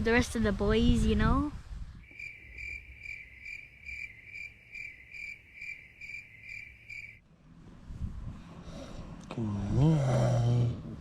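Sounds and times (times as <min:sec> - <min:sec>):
cricket chirping: 0:02.0 - 0:07.2.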